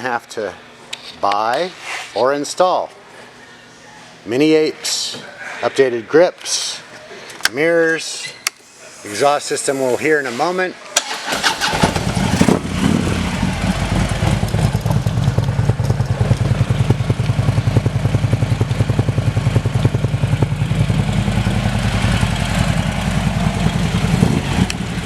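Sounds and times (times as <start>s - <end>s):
motorcycle engine idling: 11.3s - 25.0s.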